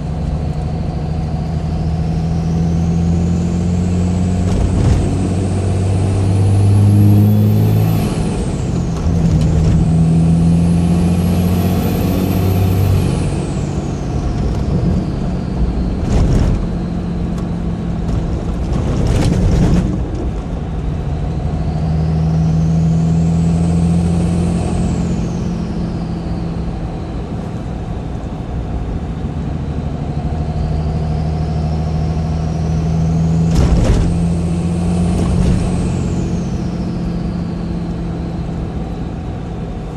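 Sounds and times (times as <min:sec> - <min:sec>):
diesel engine low drone: 0:00.0 - 0:39.9
turbocharger whistling: 0:21.1 - 0:27.3, 0:30.0 - 0:39.9.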